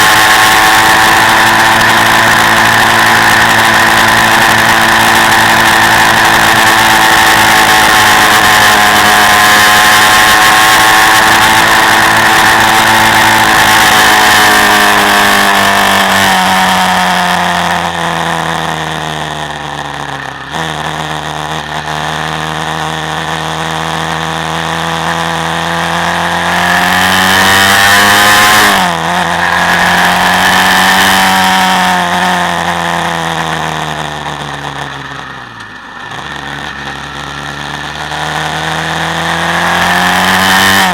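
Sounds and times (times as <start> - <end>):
quad bike engine revving: 0.0 - 40.9.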